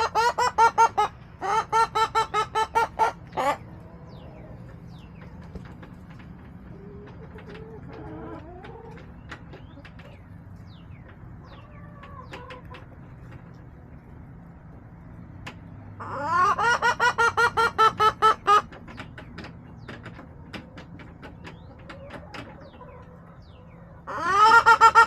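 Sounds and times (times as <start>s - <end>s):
hen cackling loudly: 0.0s - 3.6s, 16.0s - 18.7s, 24.1s - 25.0s
hens clucking softly: 0.0s - 25.0s.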